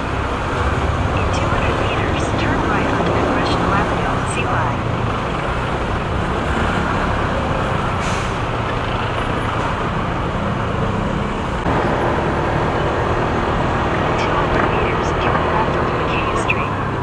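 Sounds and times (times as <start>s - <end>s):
wind and road rush: 0.0s - 17.0s.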